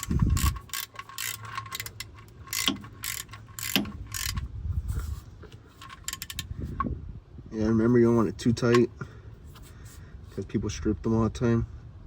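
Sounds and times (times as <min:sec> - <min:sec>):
socket ratchet clicking: 0:00.0 - 0:04.5, 0:05.8 - 0:06.5.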